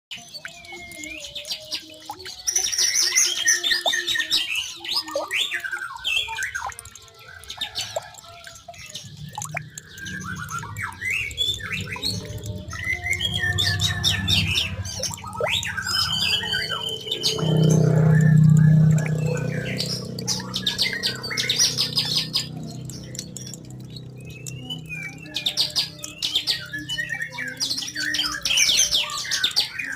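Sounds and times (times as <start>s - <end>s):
songbirds chirping and singing: 0.1s - 29.9s
low steady hum: 9.1s - 25.9s.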